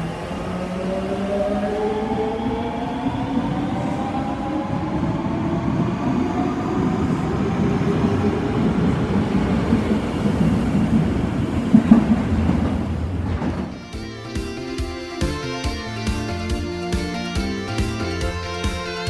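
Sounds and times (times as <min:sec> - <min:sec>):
subway train motor whine: 0:00.0 - 0:19.0
train rumbling: 0:00.0 - 0:19.0
train bump: 0:11.7 - 0:15.4.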